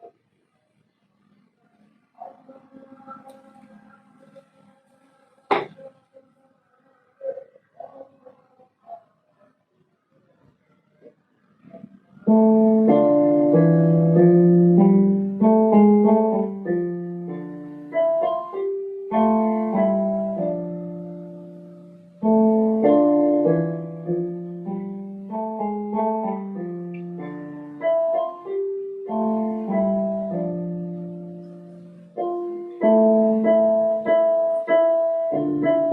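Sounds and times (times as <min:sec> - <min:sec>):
solo piano piece: 0:12.2 - 0:35.9.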